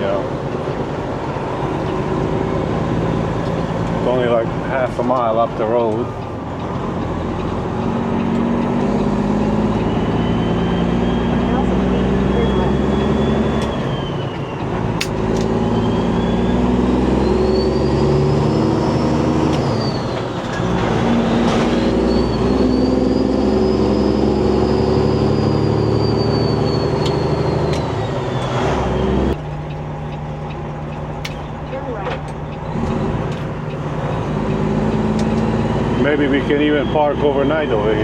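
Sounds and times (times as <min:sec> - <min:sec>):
truck diesel engine under load: 0:00.0 - 0:38.0.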